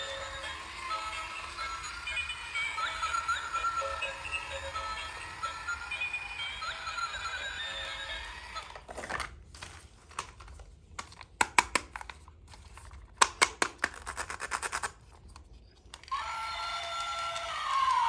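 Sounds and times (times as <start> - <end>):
plastic toy pieces clicking: 13.2 - 15.0.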